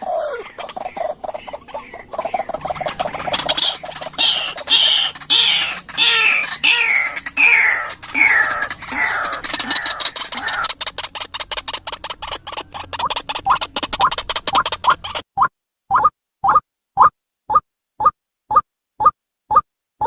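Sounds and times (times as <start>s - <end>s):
waterhen harsh calls: 0.0s - 15.2s.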